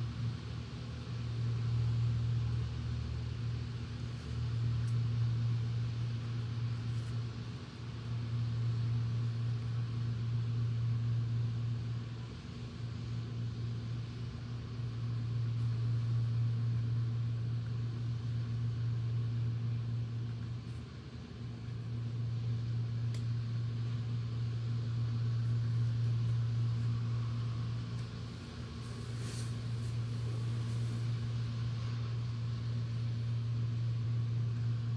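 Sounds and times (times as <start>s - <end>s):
electric fan humming: 18.6s - 34.9s.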